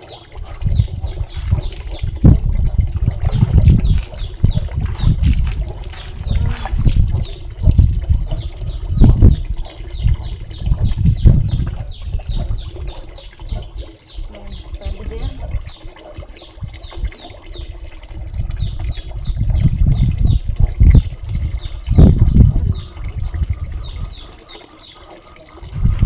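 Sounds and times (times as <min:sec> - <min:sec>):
water splashing and sloshing: 0:00.0 - 0:26.0
bird chirping: 0:00.7 - 0:02.0, 0:03.3 - 0:07.4, 0:08.3 - 0:15.4.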